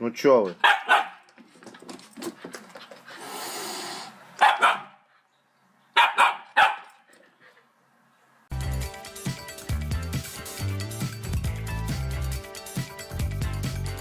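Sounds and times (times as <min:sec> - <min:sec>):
dog barking: 0:00.6 - 0:01.3, 0:04.4 - 0:05.0, 0:05.9 - 0:07.0.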